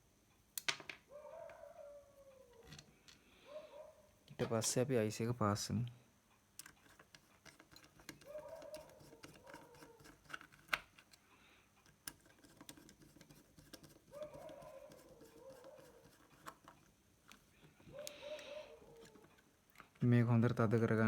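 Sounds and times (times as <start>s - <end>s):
screwdriver clicks and scrapes: 6.6s - 11.2s, 11.8s - 18.2s, 18.9s - 20.0s.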